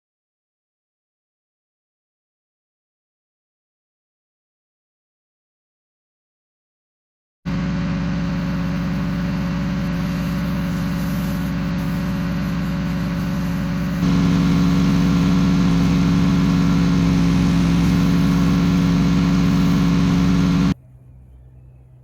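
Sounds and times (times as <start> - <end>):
small gas engine running: 7.5 - 20.8.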